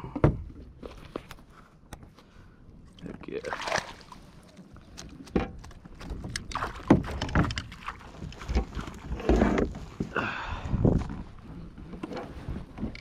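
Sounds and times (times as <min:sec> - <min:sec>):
knocks and thumps on kayak: 0:05.3 - 0:10.2.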